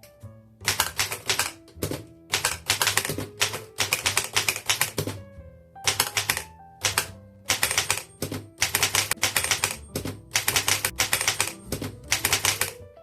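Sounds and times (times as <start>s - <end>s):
background music: 0.0s - 13.0s
typewriter clacking: 0.6s - 5.2s, 5.9s - 12.8s.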